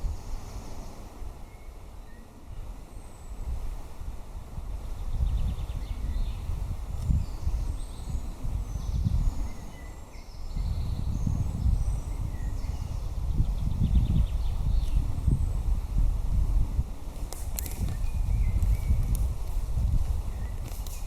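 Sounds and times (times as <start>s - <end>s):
wind buffeting microphone: 0.0s - 21.0s
birds chirping and trilling: 4.9s - 15.7s, 17.6s - 19.3s.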